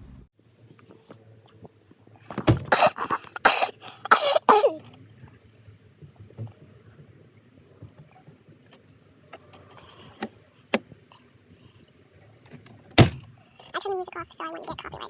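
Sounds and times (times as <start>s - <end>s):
person coughing hard: 2.4s - 4.8s.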